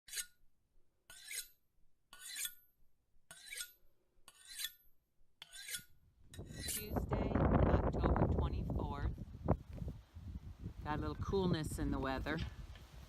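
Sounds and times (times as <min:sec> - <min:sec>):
file sharpener filing saw blade: 0:00.1 - 0:00.4, 0:01.1 - 0:02.6, 0:03.3 - 0:04.8, 0:05.4 - 0:06.9.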